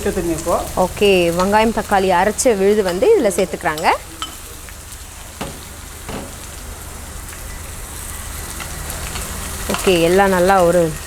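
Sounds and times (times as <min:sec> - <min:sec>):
paste sizzling in hot oil: 0:00.0 - 0:11.0
faint utensil knocks: 0:05.4 - 0:06.5.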